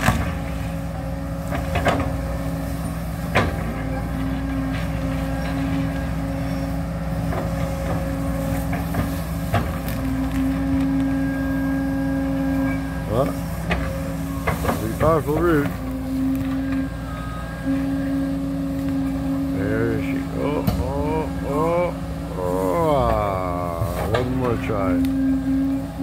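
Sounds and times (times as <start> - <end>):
diesel engine running under load: 0.0 - 26.0
digging knocks and clanks: 1.4 - 11.5, 12.2 - 17.0.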